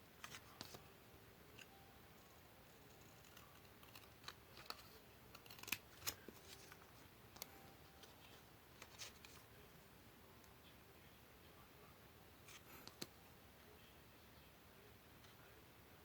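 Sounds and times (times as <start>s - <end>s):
paper handling: 0.2s - 0.8s, 2.9s - 9.5s.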